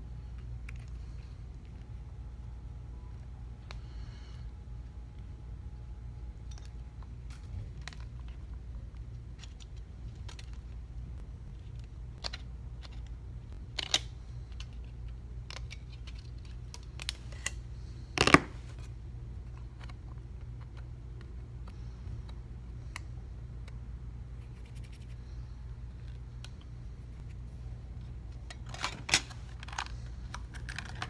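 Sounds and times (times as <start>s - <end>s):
steady low hum: 0.0s - 31.0s
tools and parts clicking and tapping: 6.4s - 7.1s, 11.8s - 17.5s.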